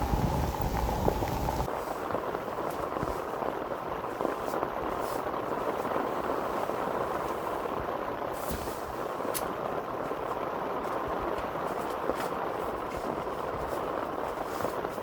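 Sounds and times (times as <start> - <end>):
heavy rain hissing: 0.0 - 11.8.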